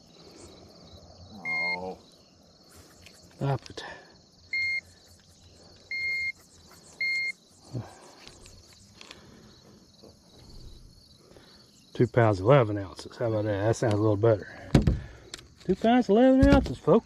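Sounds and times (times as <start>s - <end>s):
digital scale beeping: 1.4s - 1.9s, 4.5s - 4.8s, 5.9s - 6.4s, 7.0s - 7.4s.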